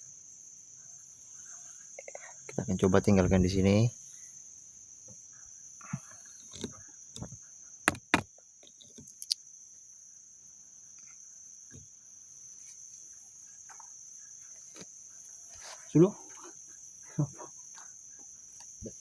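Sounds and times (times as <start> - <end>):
crickets chirping: 0.0 - 19.0
sharp clicks or knocks: 6.6 - 8.3.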